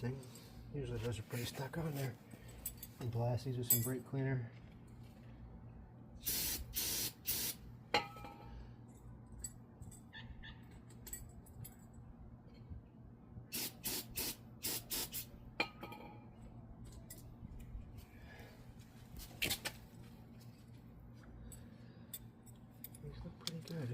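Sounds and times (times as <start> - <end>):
light metal clinks: 2.4 - 4.2, 10.8 - 12.0
aerosol spray hissing bursts: 6.2 - 7.6, 13.5 - 15.3.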